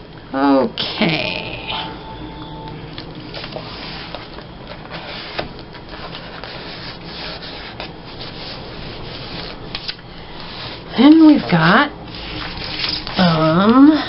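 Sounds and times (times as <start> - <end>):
paper rubbing by hand: 3.3 - 4.3, 4.9 - 11.4.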